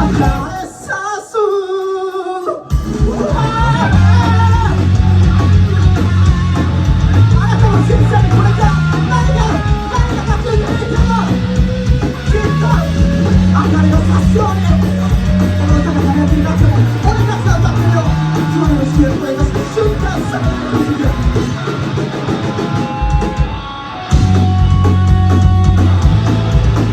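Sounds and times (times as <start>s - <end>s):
bass line: 0.0s - 0.7s, 2.7s - 26.9s
electric guitars: 0.0s - 1.1s, 2.5s - 26.9s
person singing: 0.0s - 5.3s.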